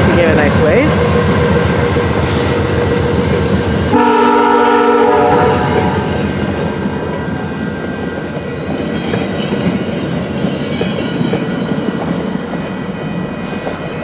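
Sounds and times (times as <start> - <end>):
diesel train rumbling past: 0.0 - 14.0
locomotive air horn blast: 2.2 - 2.8, 3.9 - 6.3.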